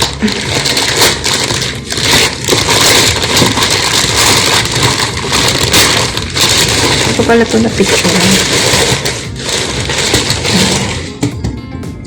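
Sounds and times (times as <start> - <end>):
cardboard box scraping and crackling: 0.0 - 11.3.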